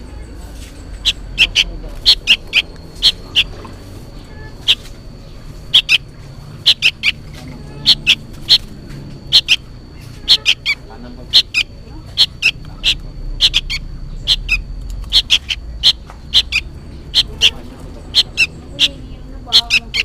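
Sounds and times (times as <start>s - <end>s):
young bird calling: 0.0s - 20.0s.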